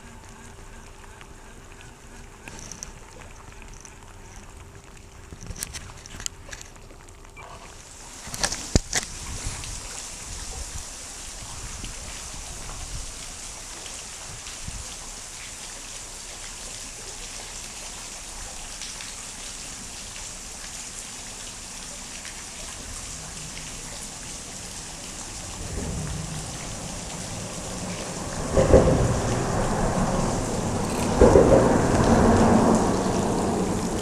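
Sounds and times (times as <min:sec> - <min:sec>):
steady rain falling: 0:00.0 - 0:34.0
low rumble: 0:25.1 - 0:34.0.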